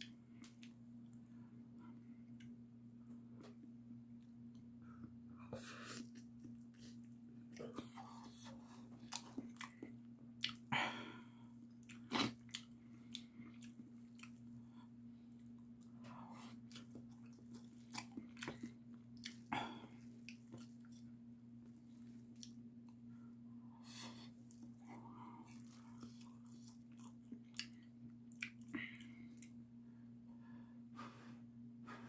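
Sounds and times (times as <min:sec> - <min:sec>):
person chewing noodles: 0:05.6 - 0:21.2, 0:21.9 - 0:22.6, 0:23.8 - 0:29.6.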